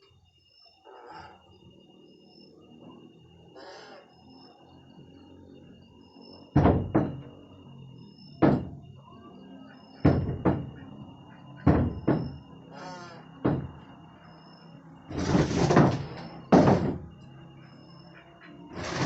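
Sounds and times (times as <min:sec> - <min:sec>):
loud hard knocks: 0:06.6 - 0:07.3, 0:08.4 - 0:08.8, 0:10.0 - 0:10.8, 0:11.6 - 0:12.4, 0:13.4 - 0:13.9, 0:15.1 - 0:17.1.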